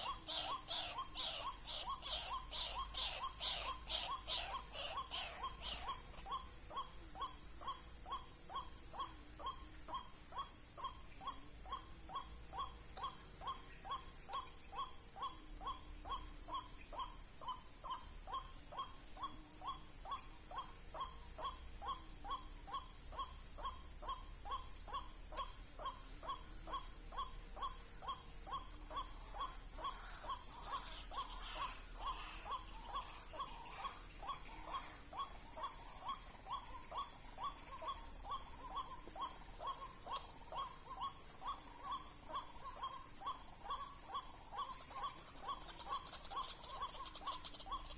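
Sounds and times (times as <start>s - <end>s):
waterhen calling: 0.0s - 6.4s, 27.6s - 44.0s
high insect drone: 0.0s - 47.9s.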